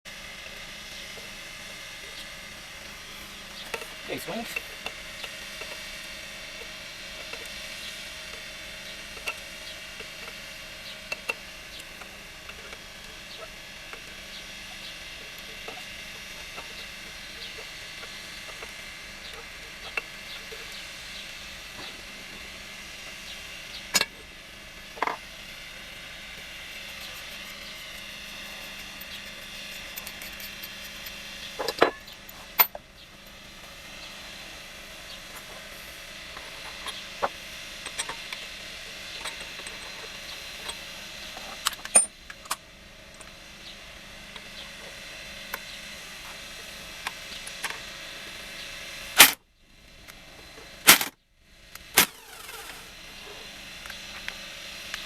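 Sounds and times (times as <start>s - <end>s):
tools and metal parts clinking: 37.8s - 38.4s, 39.1s - 40.8s, 50.9s - 51.1s.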